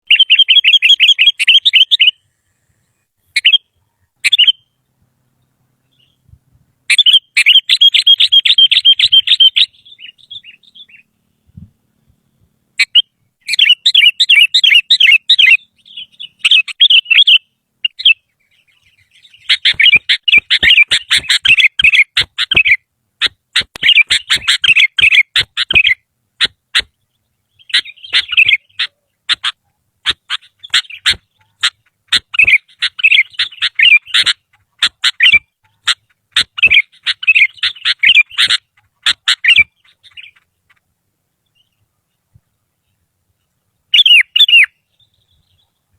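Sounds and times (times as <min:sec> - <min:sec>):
bird chattering song: 0:00.0 - 0:02.2, 0:03.0 - 0:42.2, 0:42.8 - 0:45.9
sharp clicks: 0:23.6 - 0:24.5.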